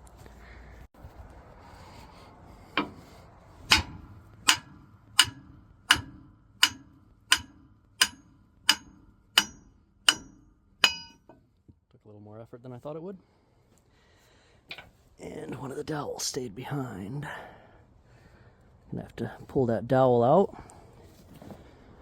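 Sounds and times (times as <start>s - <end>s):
hammer striking metal: 2.8s - 11.4s.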